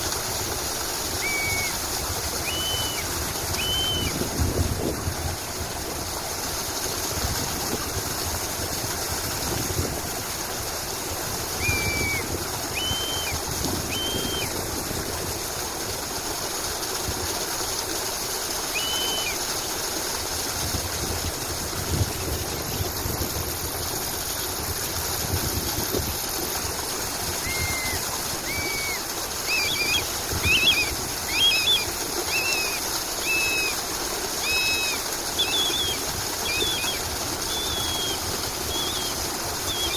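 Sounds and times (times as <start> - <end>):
rushing background like running water: 0.0 - 39.9
small birds chirping: 27.6 - 33.7, 34.4 - 39.9.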